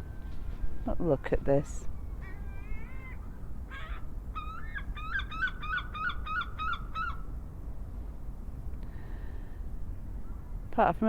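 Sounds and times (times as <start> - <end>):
low hum of traffic: 0.0 - 11.0
seagull calling: 1.6 - 7.3.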